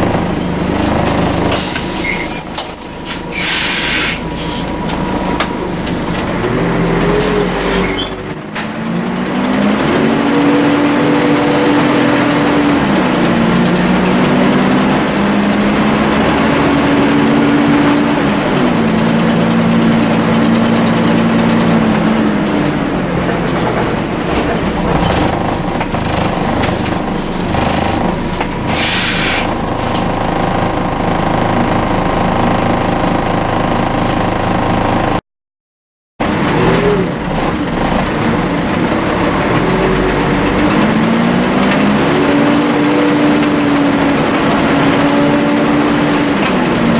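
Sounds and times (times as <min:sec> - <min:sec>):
bus diesel engine accelerating: 0:00.0 - 0:35.2, 0:36.2 - 0:46.9
air brake hiss: 0:03.1 - 0:04.6, 0:28.7 - 0:29.5.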